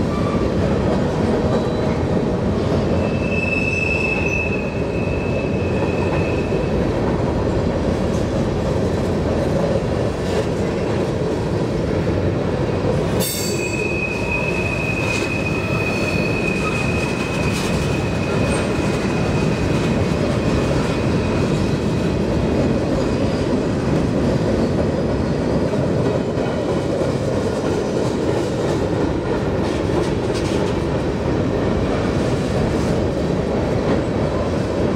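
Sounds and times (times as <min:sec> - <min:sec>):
freight train wheels rumbling: 0:00.0 - 0:34.9
high wheel squeal: 0:03.0 - 0:06.7, 0:13.3 - 0:19.4.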